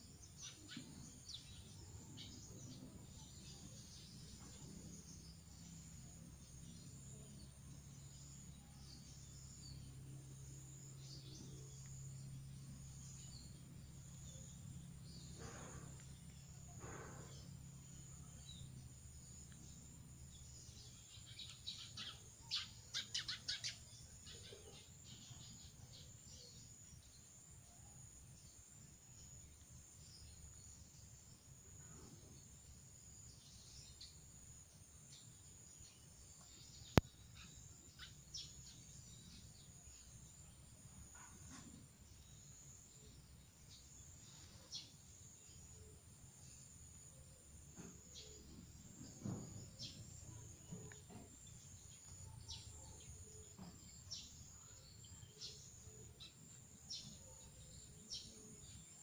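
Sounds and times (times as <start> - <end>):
bird chirps: 0.1 - 28.6.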